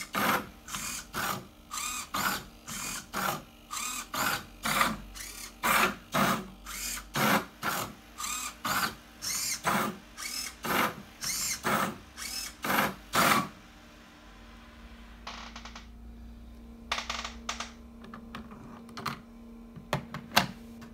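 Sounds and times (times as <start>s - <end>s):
robot motors whirring: 0.0s - 13.4s
steady low hum: 0.0s - 20.9s.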